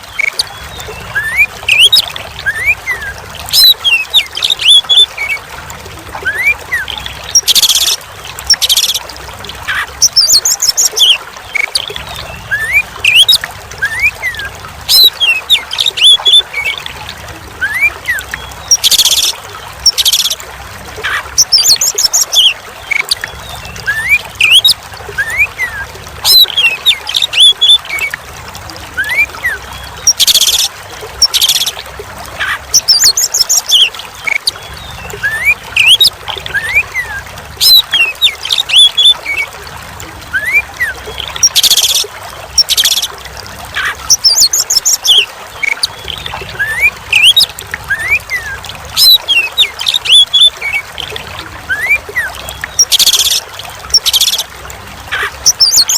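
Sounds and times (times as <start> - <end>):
trickle of running water: 0.0 - 55.9
harsh rasping bird calls: 43.7 - 51.1.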